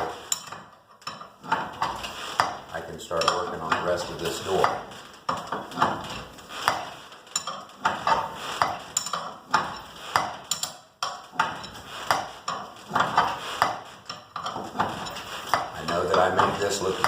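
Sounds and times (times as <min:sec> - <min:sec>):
metal bars clanking: 0:00.0 - 0:17.0.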